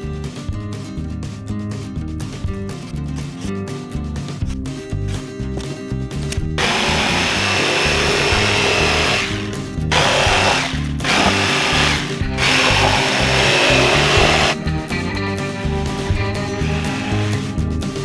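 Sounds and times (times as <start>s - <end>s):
background music: 0.0s - 18.0s
power tool running: 6.6s - 14.6s, 15.7s - 17.5s.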